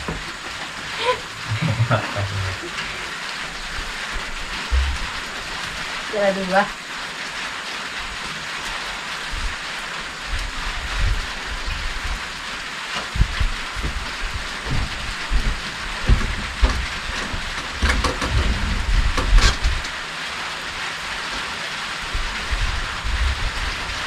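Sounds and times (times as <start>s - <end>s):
rain falling: 0.0s - 24.0s
low thumps: 4.6s - 5.3s, 13.2s - 19.9s.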